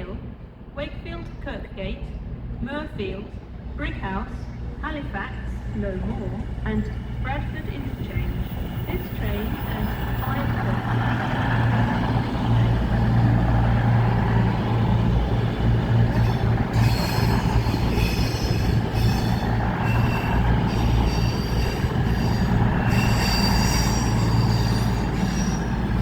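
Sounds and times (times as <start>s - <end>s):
train rumbling: 0.0s - 26.0s
train wheel squeals: 16.0s - 26.0s.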